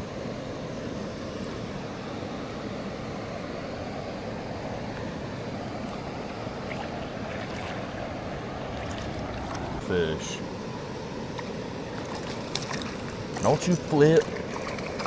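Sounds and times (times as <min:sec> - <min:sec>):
flowing river water: 0:00.0 - 0:15.0.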